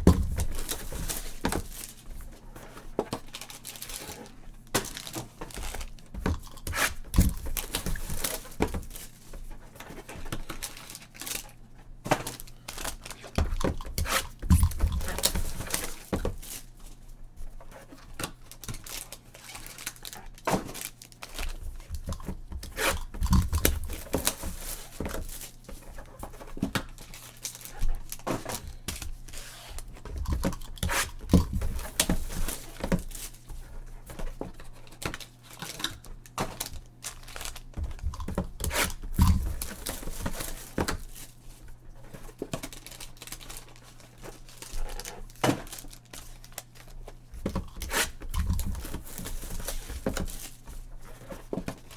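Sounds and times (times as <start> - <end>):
cardboard rustles and knocks: 0.0 - 51.9
plastic wrap tearing and crinkling: 0.2 - 9.3, 10.1 - 11.6, 18.2 - 25.7, 34.8 - 50.8.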